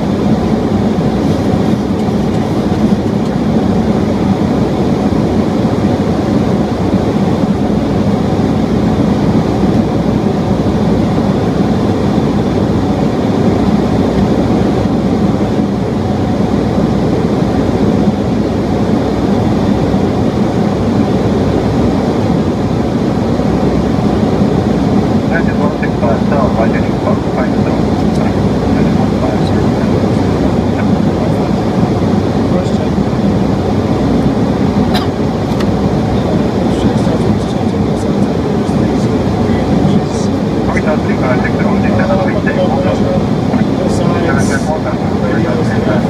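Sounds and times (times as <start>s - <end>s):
airplane cabin engine roar: 0.0s - 46.0s.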